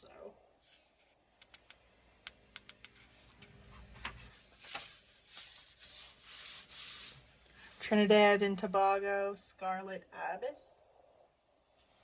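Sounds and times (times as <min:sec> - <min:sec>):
paper pages turning: 0:03.8 - 0:07.2.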